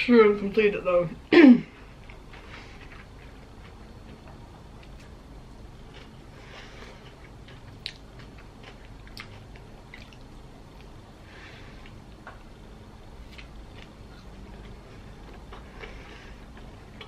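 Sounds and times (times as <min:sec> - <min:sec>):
wet squishy chewing: 0:07.4 - 0:10.9.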